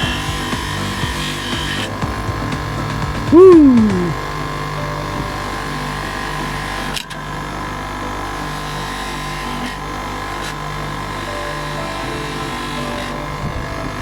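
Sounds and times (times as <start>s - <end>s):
polishing machine humming: 4.1s - 14.0s.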